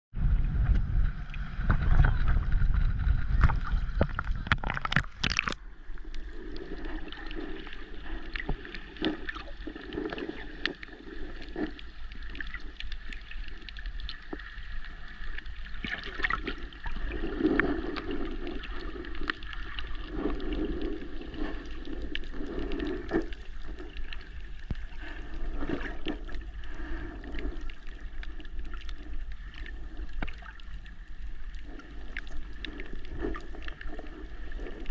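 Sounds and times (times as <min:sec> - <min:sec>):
low rumble: 0:00.1 - 0:09.2
muffled underwater water sloshing: 0:00.2 - 0:34.9
underwater clicks: 0:03.2 - 0:30.8.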